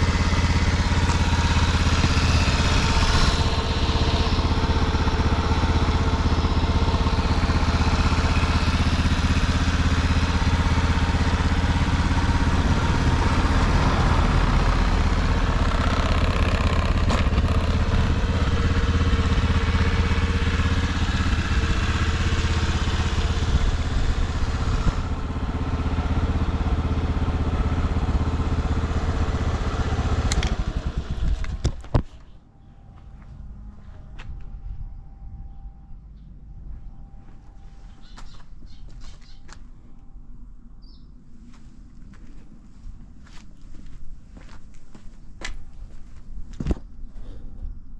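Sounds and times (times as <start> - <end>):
small engine idling: 0.0 - 31.9.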